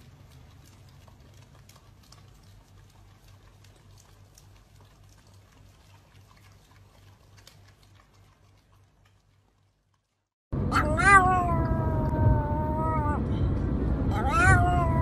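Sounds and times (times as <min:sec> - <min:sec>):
dogs licking: 0:00.0 - 0:10.2
pulsing low hum: 0:10.6 - 0:15.0.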